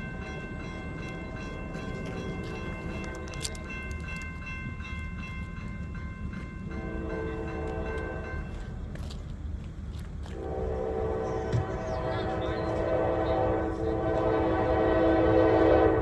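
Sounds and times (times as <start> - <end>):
train wheel clicks: 0.0 - 10.4
freight train rumbling: 0.0 - 16.0
train horn: 6.7 - 8.5, 10.3 - 16.0.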